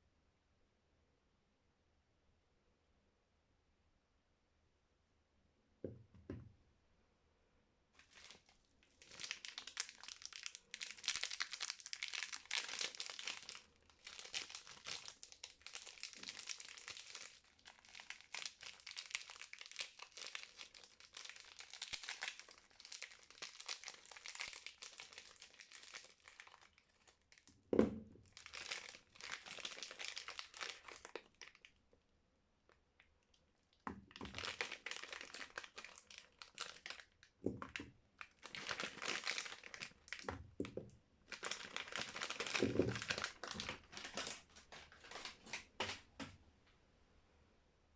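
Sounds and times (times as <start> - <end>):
wrapper crinkling and tearing: 8.0 - 27.5, 28.2 - 31.8, 34.0 - 46.0.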